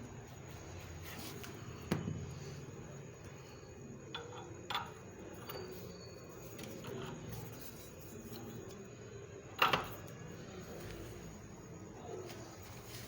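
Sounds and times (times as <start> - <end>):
faint clinks: 3.3 - 8.8.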